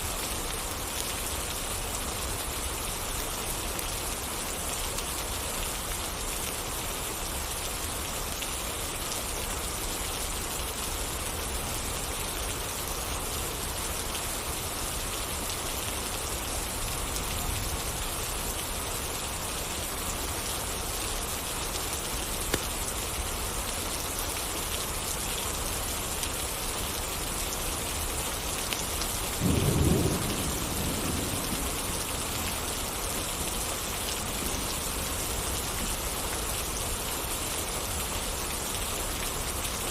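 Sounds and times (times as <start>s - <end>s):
rain falling: 0.0s - 39.9s
low thunder rumble: 29.4s - 32.3s.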